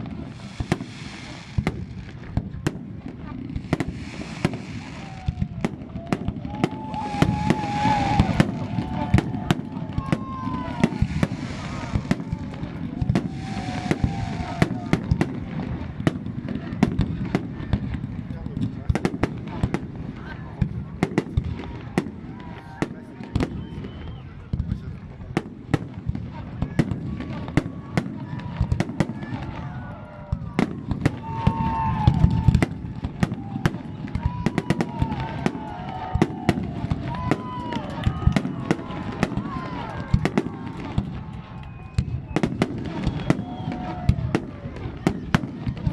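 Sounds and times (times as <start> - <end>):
low crowd murmur: 0.0 - 45.9.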